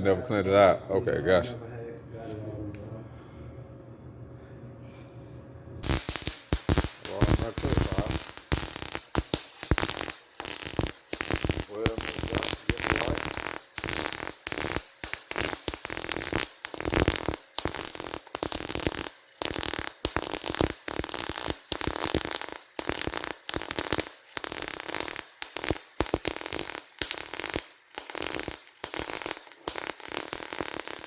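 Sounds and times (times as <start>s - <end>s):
welding arc crackling: 5.8s - 31.0s.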